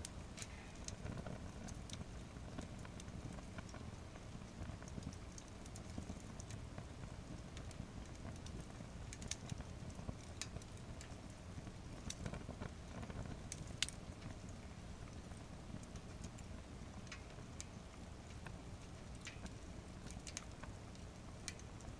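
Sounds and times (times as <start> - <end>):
firewood crackling and popping: 0.0 - 21.9
low rumble of fire: 0.0 - 21.9.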